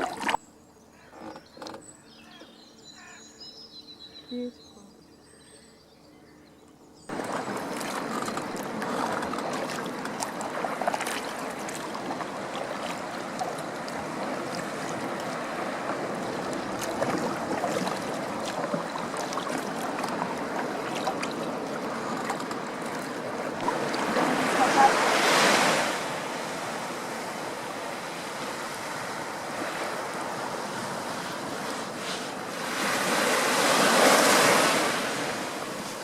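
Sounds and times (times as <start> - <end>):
water rushing around kayak: 0.0 - 0.4, 7.1 - 36.0.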